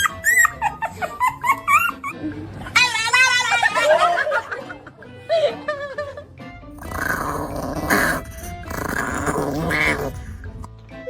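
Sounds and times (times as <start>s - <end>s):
music: 0.0s - 11.0s
dog growling: 6.8s - 10.8s.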